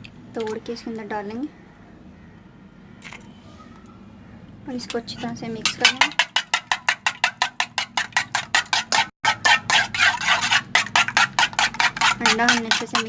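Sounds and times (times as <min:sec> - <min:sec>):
eggs beaten in a bowl: 0:05.6 - 0:13.0.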